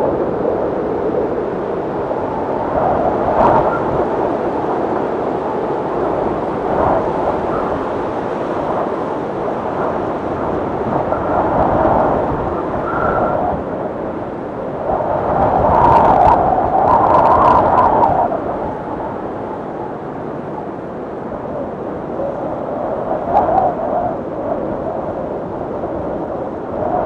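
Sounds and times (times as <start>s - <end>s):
snowstorm wind gusting: 0.0s - 27.0s
thin wind whistle: 6.7s - 9.0s, 10.9s - 13.9s.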